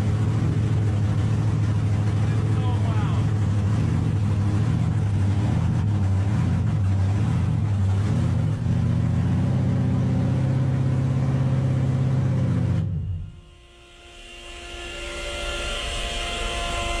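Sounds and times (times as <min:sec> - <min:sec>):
golf cart engine running: 0:00.0 - 0:11.5.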